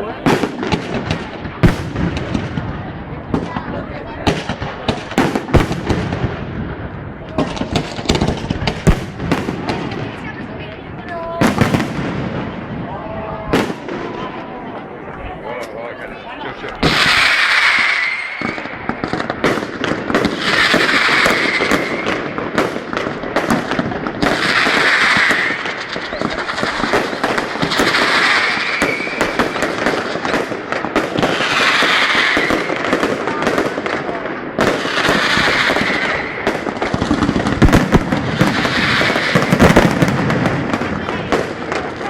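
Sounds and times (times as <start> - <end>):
fireworks crackling bangs: 0.0 - 42.0
firework hissing rush: 16.8 - 30.7, 34.7 - 42.0.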